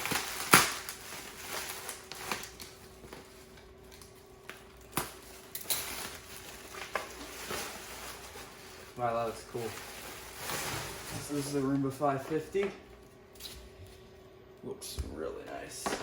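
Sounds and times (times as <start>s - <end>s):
packaging rustling: 0.0s - 12.6s.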